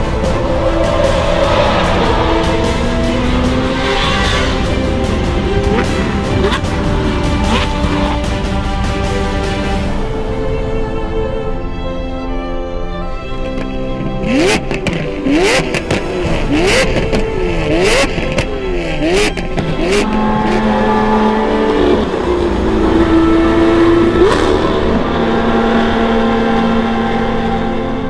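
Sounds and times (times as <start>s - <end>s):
sports car engine revving: 0.0s - 8.5s.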